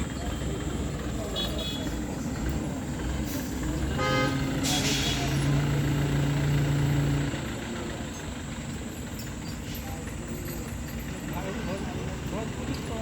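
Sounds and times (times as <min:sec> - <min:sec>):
heavy vehicle engine hum: 0:00.0 - 0:13.0
road traffic rumble: 0:00.0 - 0:13.0.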